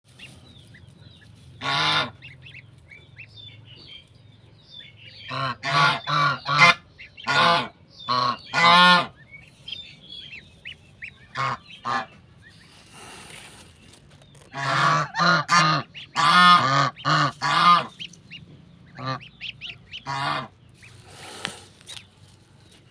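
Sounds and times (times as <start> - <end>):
goslings peeping: 0.1 - 22.9
goose honking: 1.6 - 3.3, 5.1 - 9.3, 10.2 - 12.7, 14.5 - 21.2.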